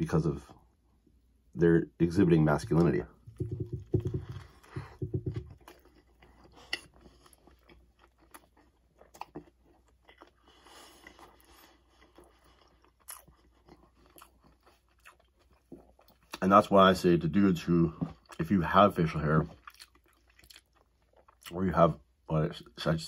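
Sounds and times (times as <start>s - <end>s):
crunchy chewing: 3.3s - 16.4s, 19.4s - 21.6s.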